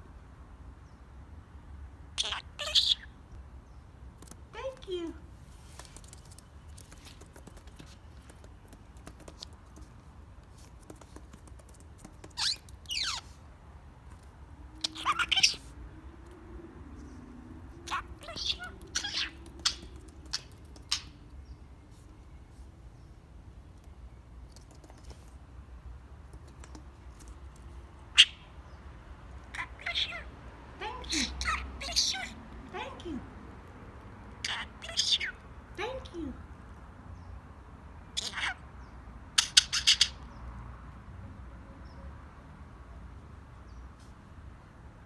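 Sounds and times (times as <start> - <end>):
faint clicks and ticks: 5.7 - 12.9
budgerigar high calls: 12.4 - 13.3, 14.8 - 15.7, 17.9 - 21.1, 39.4 - 40.2.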